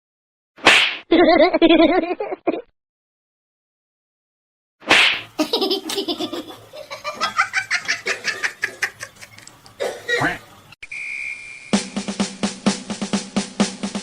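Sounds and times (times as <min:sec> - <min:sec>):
person laughing heartily: 0:01.1 - 0:02.7, 0:05.4 - 0:09.4.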